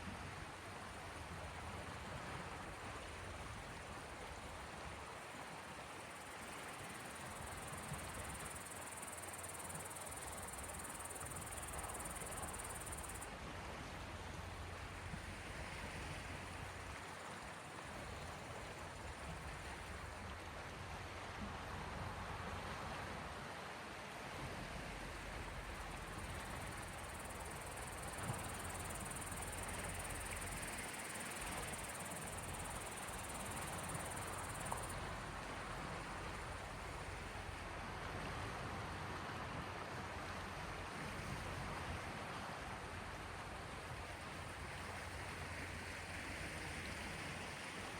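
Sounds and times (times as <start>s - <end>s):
sea waves: 1.3s - 47.9s
cricket trill: 6.1s - 13.3s, 25.5s - 37.4s.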